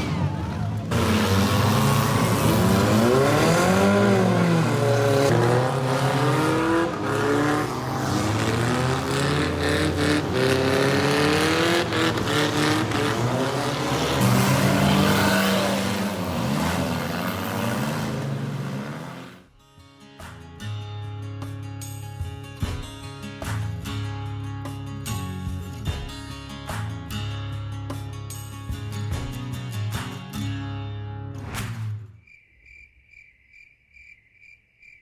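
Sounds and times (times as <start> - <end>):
car engines revving: 0.0 - 19.4.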